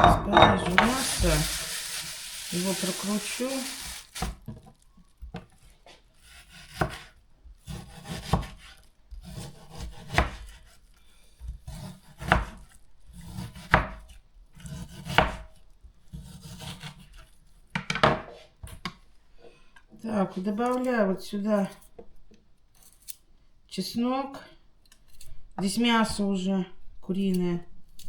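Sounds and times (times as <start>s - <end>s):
knife slicing raw chicken: 6.2s - 10.8s.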